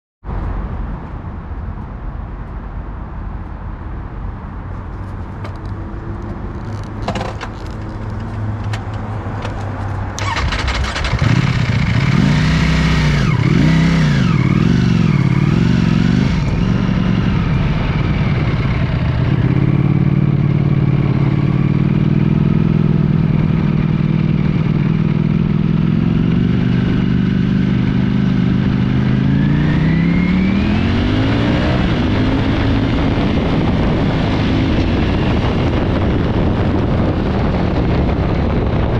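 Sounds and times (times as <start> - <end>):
engine clicks: 5.4 - 11.5
motorcycle engine revving: 9.5 - 38.8.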